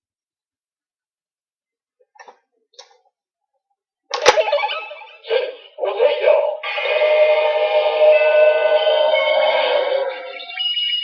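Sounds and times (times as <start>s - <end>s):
electronic sound effect from toy: 4.1s - 11.0s.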